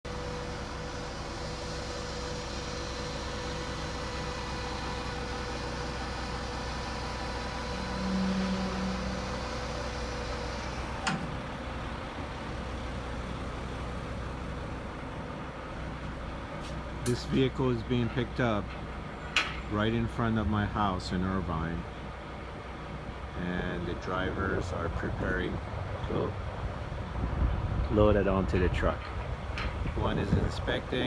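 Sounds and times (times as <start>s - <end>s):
vehicle engine idling: 0.0s - 27.5s
low hum: 0.1s - 21.9s.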